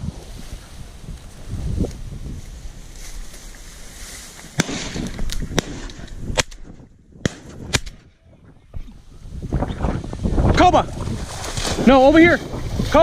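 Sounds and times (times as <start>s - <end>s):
wind noise on microphone: 0.0s - 13.0s
shotgun shots: 4.6s - 8.1s.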